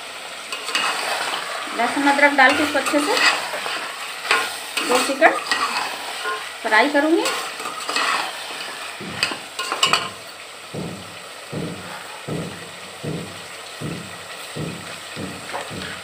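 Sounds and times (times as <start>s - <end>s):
chicken sizzling in oil: 0.0s - 16.0s
metal ladle scraping a pot: 0.5s - 10.2s
soft low thumps: 10.7s - 16.0s.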